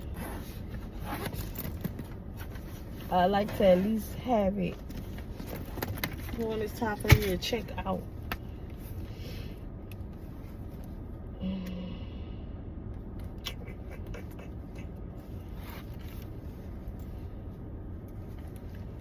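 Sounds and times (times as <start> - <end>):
rummaging through a bag: 0.0 - 7.7
low vehicle rumble: 0.0 - 19.0.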